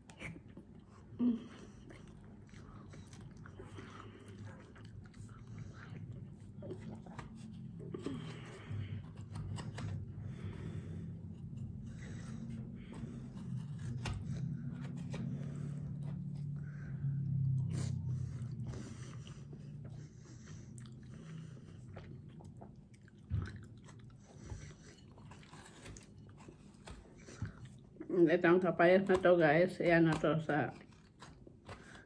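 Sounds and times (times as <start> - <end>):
person chewing and biting food: 0.0 - 10.2, 20.5 - 28.0, 30.8 - 32.0
low steady hum: 0.0 - 32.0.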